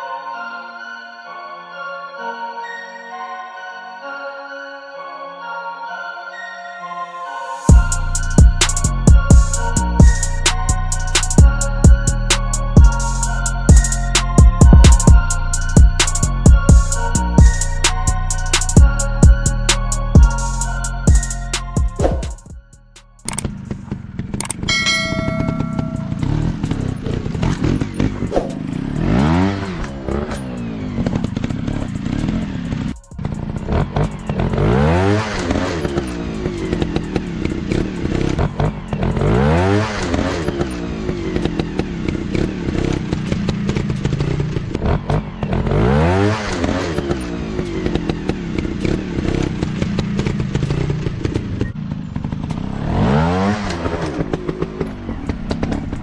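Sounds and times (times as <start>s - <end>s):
dirt bike engines revving: 23.4s - 56.0s.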